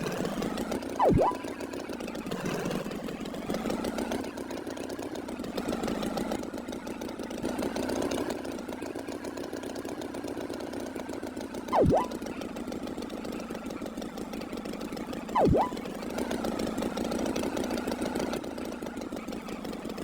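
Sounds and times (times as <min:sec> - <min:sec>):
whistle-like pitch sweep: 0:01.0 - 0:01.4, 0:11.8 - 0:12.2, 0:15.4 - 0:15.8.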